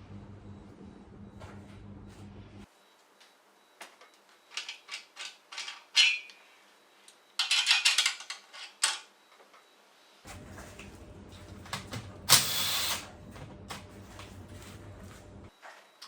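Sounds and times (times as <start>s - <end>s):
metal tools clinking: 4.5s - 6.4s, 7.4s - 9.1s.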